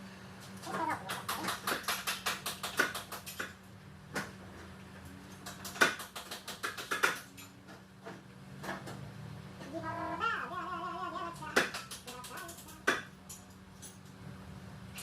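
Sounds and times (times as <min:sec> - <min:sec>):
sharp clicks and knocks: 0:05.3 - 0:09.0, 0:11.4 - 0:13.4.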